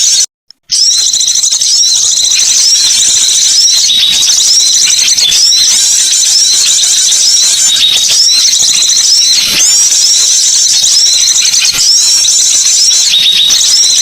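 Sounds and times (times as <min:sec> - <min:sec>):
songbirds chirping and twittering: 0:00.7 - 0:14.0.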